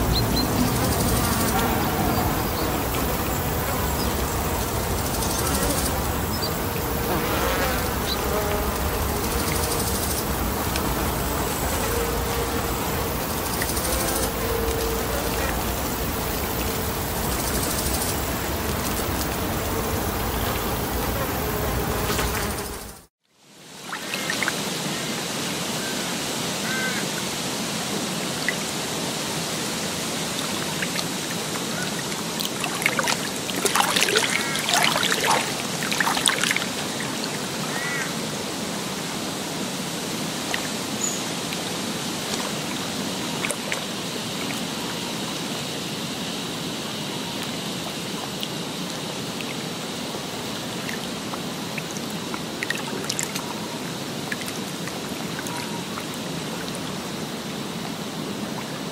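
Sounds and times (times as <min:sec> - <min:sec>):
birds calling: 0:00.0 - 0:23.0
running water: 0:00.0 - 0:58.9.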